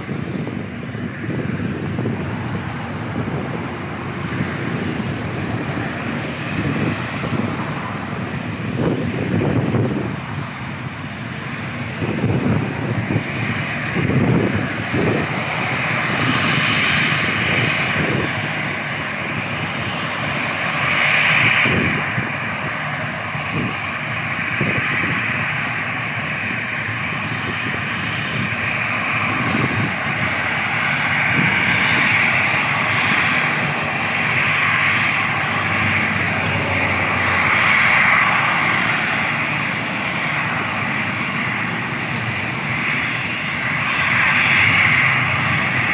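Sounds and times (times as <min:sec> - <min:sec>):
aircraft engines: 0:00.0 - 0:45.9
wind buffeting microphone: 0:00.0 - 0:45.9.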